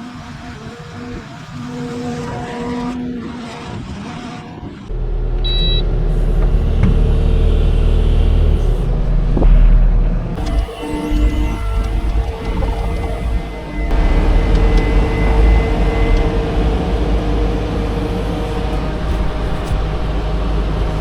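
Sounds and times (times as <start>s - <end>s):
motor running: 0.0s - 21.0s
short high beep: 5.4s - 5.8s.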